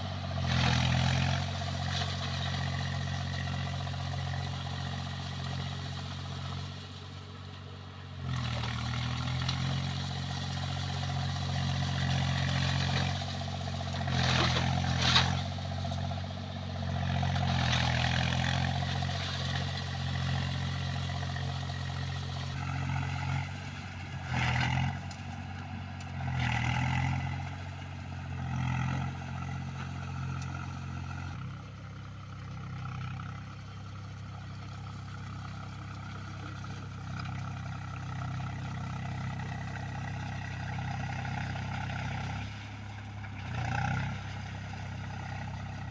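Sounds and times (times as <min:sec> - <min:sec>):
tractor diesel engine under load: 0:00.0 - 0:45.9.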